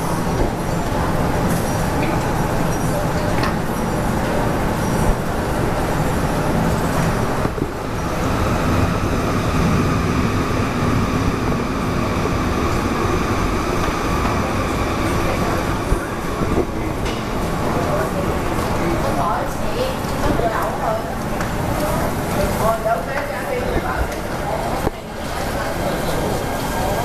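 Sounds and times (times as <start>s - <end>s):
train whine: 0.0s - 19.4s.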